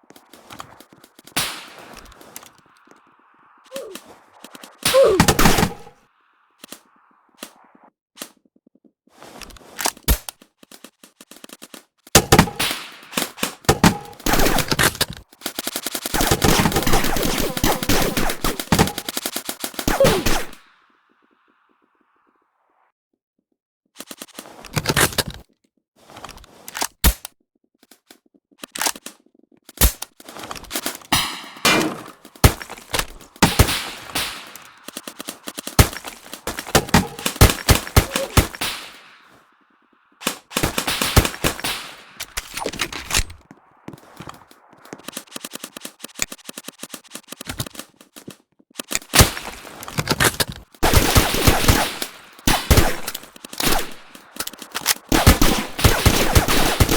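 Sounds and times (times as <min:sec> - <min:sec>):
airsoft guns firing: 0:04.8 - 0:06.0, 0:12.2 - 0:20.6, 0:30.9 - 0:39.4, 0:40.2 - 0:46.2, 0:49.0 - 0:56.9.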